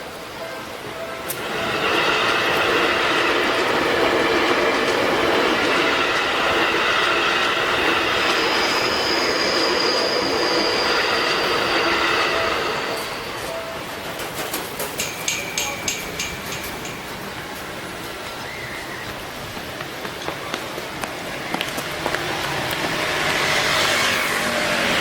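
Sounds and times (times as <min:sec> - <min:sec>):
train wheels running over rails: 0:00.1 - 0:25.0
high wheel squeal: 0:01.0 - 0:14.0.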